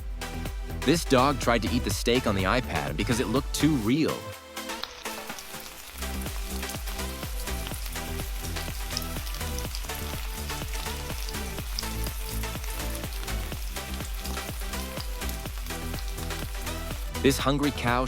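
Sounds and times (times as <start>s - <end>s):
background music with steady beat: 0.0s - 18.0s
steak sizzling in a pan: 4.5s - 17.2s.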